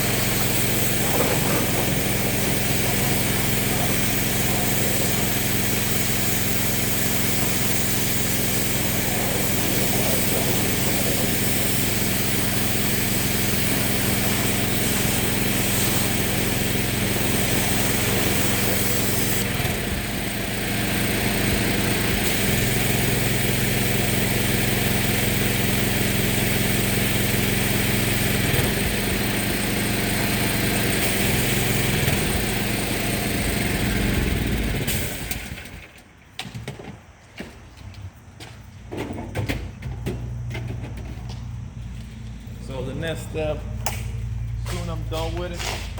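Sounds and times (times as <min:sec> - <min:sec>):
water jet spraying: 0:00.0 - 0:35.8
pressure washer motor drone: 0:00.0 - 0:36.1, 0:40.4 - 0:45.9.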